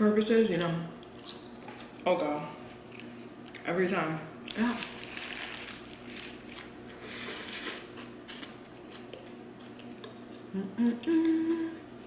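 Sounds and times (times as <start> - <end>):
wet chewing: 4.5 - 10.4.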